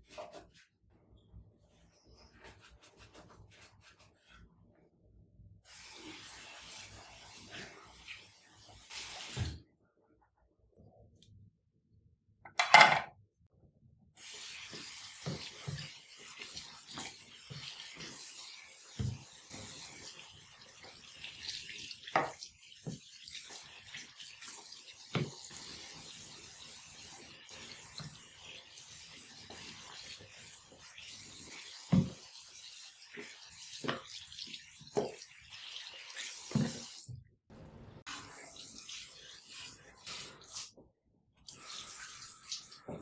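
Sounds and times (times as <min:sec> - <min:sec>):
tap water running: 0:05.7 - 0:09.6, 0:14.2 - 0:37.2, 0:38.0 - 0:40.7, 0:41.4 - 0:43.0.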